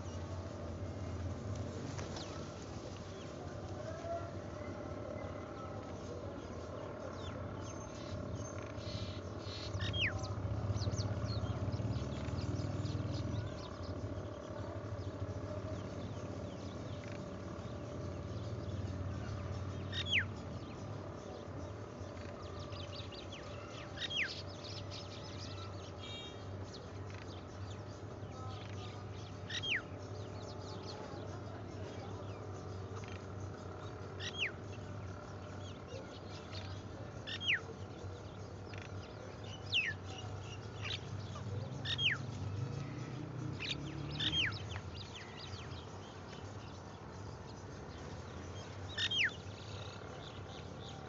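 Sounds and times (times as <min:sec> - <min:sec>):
faint outdoor background noise: 0:00.0 - 0:51.0
steady low hum: 0:00.0 - 0:51.0.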